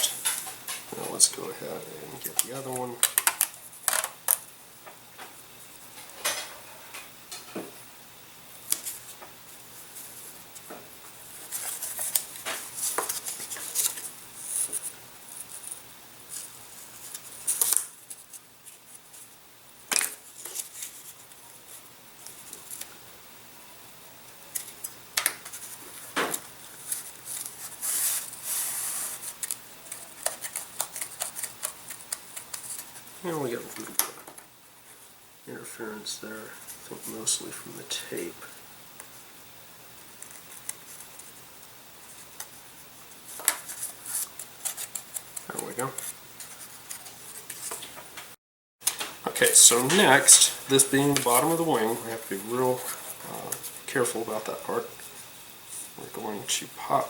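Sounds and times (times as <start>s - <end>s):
tape rustling: 11.3s - 19.3s, 24.5s - 34.0s, 42.0s - 48.0s, 48.8s - 56.0s.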